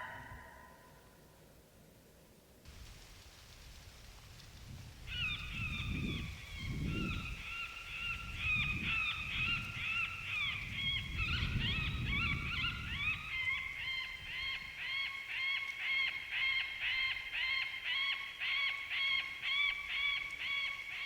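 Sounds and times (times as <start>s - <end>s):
coyotes howling and yipping: 0.0s - 1.0s.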